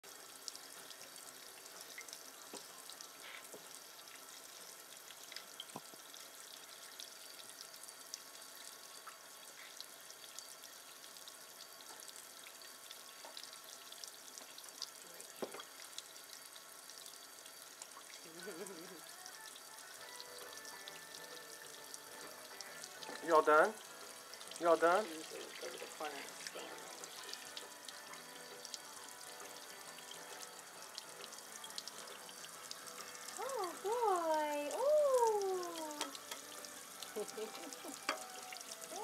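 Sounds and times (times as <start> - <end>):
water running into sink: 20.0 - 39.0.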